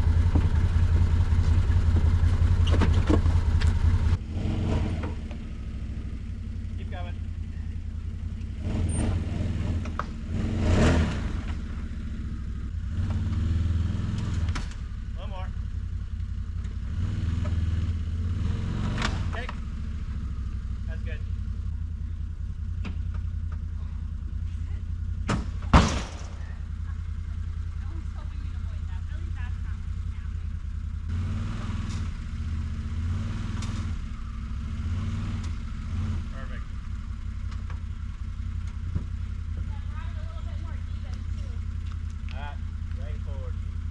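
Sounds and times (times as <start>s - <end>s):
machinery engine running and revving: 0.0s - 43.9s.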